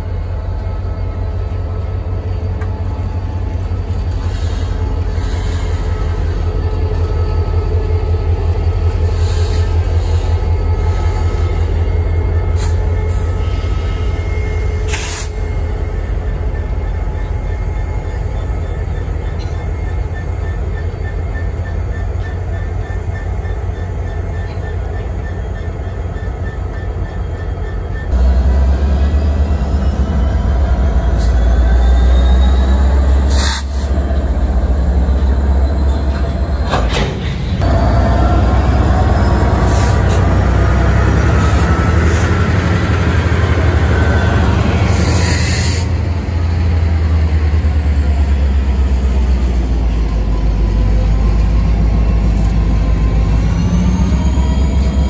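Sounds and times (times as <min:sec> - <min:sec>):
diesel locomotive rumble: 0:00.0 - 0:55.0
rail cars rolling by: 0:00.0 - 0:55.0.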